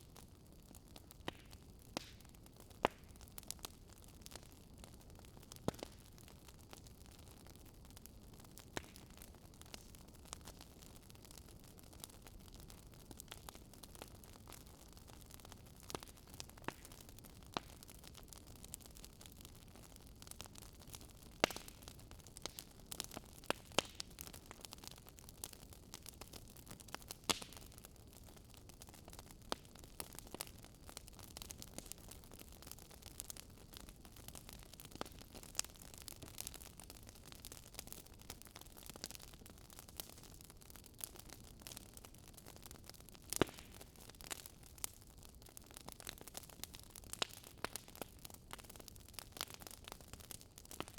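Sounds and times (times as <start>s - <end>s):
wood fire crackling: 0.0s - 50.9s.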